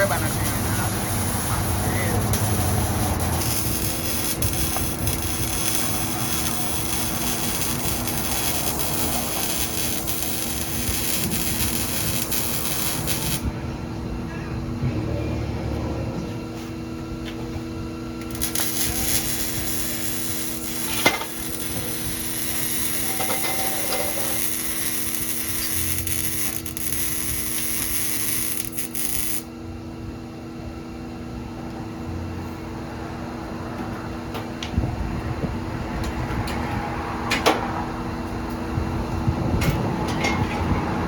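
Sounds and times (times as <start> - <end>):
power tool cutting metal: 0.0 - 13.5, 18.2 - 29.5
steady low hum: 0.0 - 41.0.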